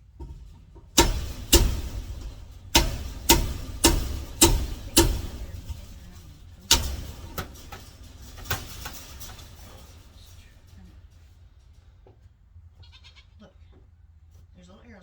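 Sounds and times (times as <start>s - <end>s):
sharp knocks: 0.2s - 11.1s.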